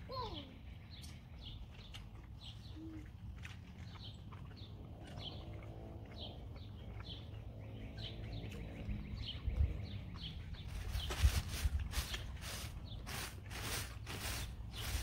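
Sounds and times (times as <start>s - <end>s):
bird chirping: 0.1s - 15.0s.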